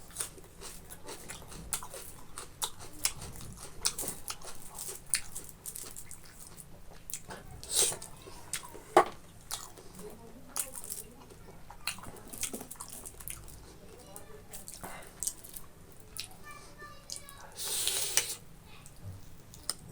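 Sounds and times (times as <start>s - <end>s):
wet chewing mouth clicks and smacks: 0.1s - 8.7s, 9.4s - 9.9s, 11.7s - 13.6s.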